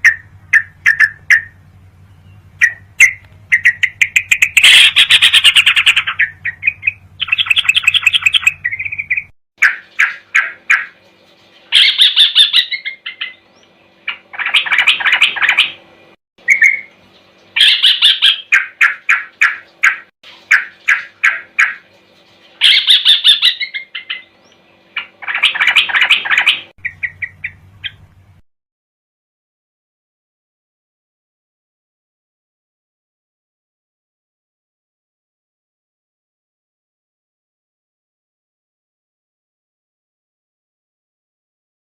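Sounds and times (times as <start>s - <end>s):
bulbul chattering chirps: 0.0s - 11.0s, 11.7s - 21.9s, 22.6s - 28.2s
faint steady hum: 0.0s - 28.4s.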